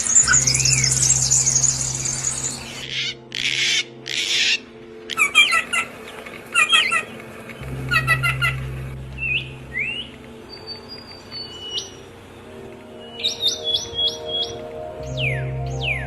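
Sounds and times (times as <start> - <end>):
harsh rasping bird calls: 0.0 - 12.2.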